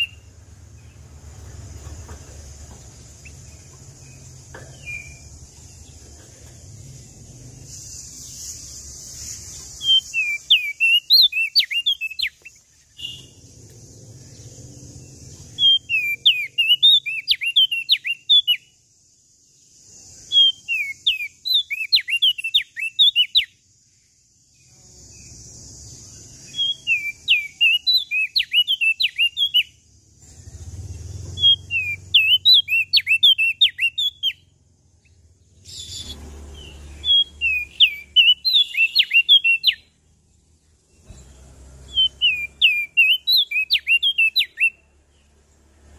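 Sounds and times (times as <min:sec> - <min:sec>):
bird chirping song: 0:00.0 - 0:45.9
steady hiss: 0:00.2 - 0:10.6.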